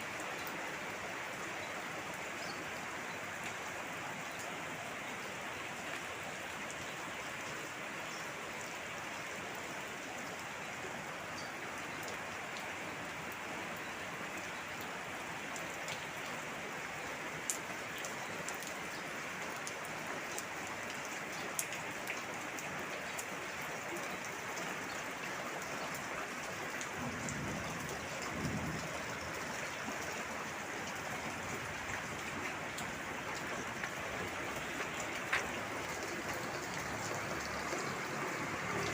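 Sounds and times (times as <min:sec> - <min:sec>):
rain splashing on surfaces: 0:00.0 - 0:38.9.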